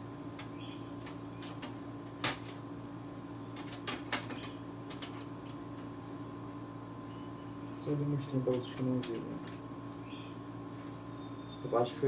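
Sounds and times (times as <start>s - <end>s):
steady low hum: 0.0s - 12.0s
light clicks and knocks of parts: 8.3s - 10.0s.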